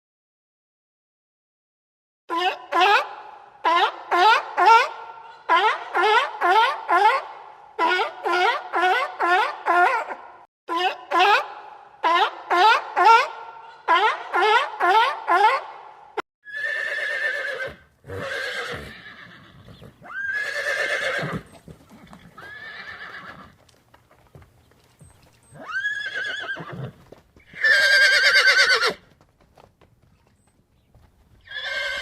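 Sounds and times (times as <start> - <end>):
horse neighing: 16.5 - 23.6, 25.4 - 29.0, 31.4 - 32.0.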